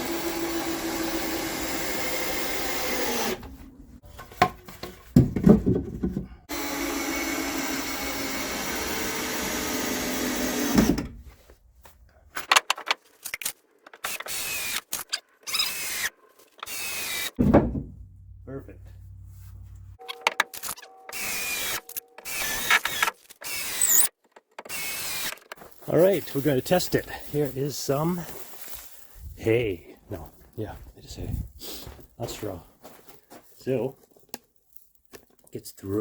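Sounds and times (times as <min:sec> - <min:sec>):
power drill running: 0:00.0 - 0:03.6, 0:06.5 - 0:11.0, 0:14.0 - 0:14.8, 0:15.5 - 0:17.4, 0:21.1 - 0:24.1, 0:24.7 - 0:25.3
wood and tools knocking: 0:04.0 - 0:06.4, 0:17.4 - 0:18.1.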